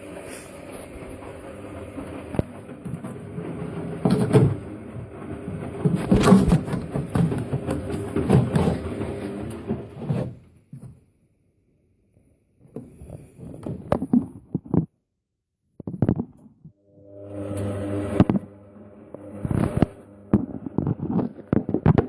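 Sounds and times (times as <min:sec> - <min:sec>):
washing machine drum tumbling: 0:00.0 - 0:10.4.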